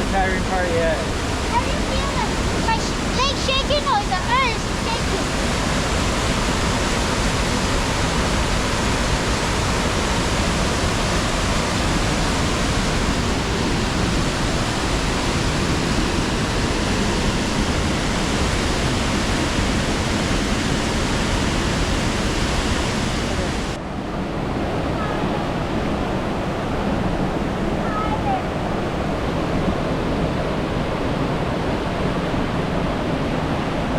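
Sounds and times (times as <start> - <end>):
rush of falling water: 0.0 - 33.9.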